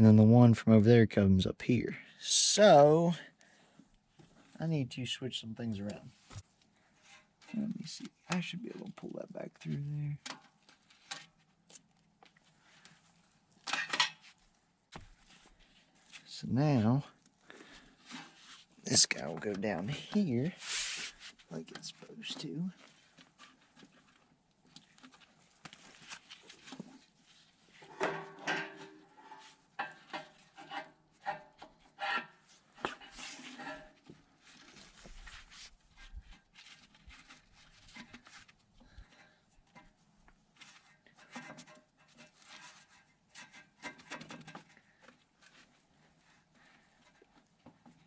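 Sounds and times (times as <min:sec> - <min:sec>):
hose scraping against metal: 0:20.4 - 0:21.4, 0:27.8 - 0:36.3.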